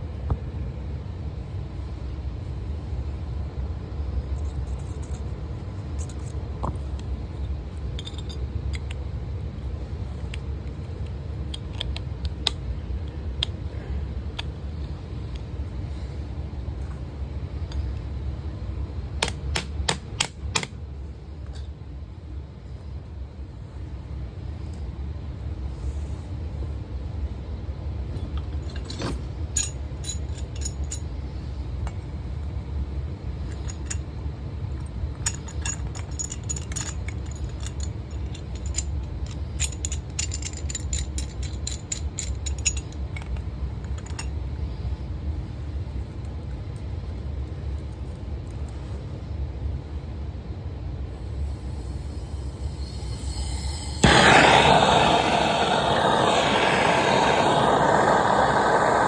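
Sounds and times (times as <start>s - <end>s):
light metallic clinks and rattles: 4.3s - 7.1s, 7.7s - 9.0s, 28.2s - 32.1s, 33.4s - 44.4s
steady low rumble: 49.0s - 59.0s.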